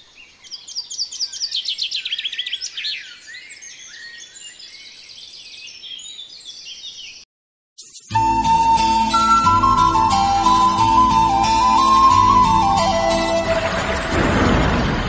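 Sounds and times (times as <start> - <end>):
birds chirping: 0.0 - 7.2.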